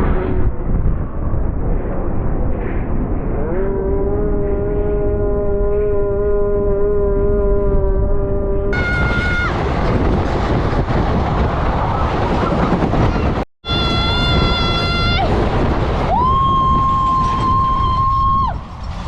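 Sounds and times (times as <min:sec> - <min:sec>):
train wheels rumbling on rails: 0:08.8 - 0:19.0.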